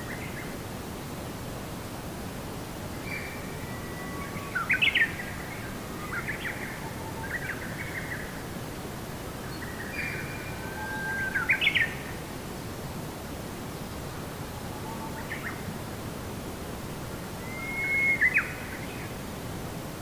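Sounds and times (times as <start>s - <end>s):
steady hiss: 0.0s - 20.0s
bird singing: 3.0s - 8.2s, 9.5s - 12.0s, 17.4s - 19.1s.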